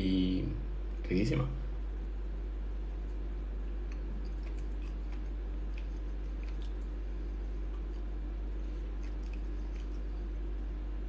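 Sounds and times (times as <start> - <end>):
steady low hum: 0.0 - 11.0
person chewing cheese: 2.8 - 10.8
wet mouth clicks: 3.8 - 7.0, 8.8 - 10.2.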